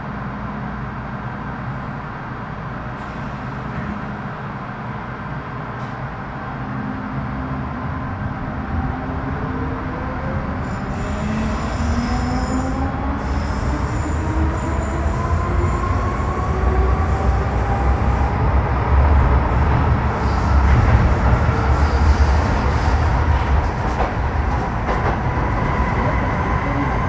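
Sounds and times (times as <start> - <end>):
wheel and rail rumble: 0.2 - 27.0.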